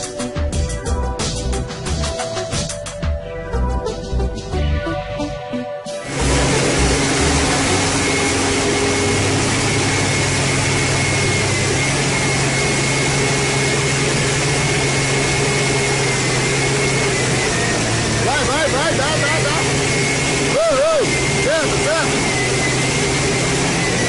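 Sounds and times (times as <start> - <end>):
loud rush of noise: 6.0 - 24.0
vehicle engine running: 6.0 - 24.0.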